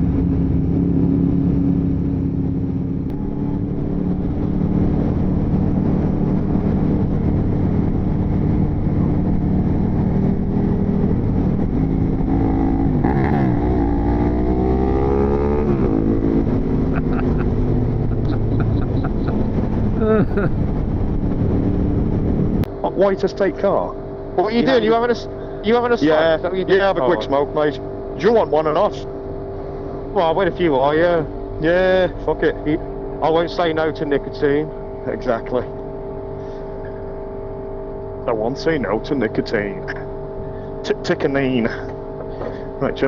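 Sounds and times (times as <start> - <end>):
motorcycle engine revving: 0.0 - 22.7.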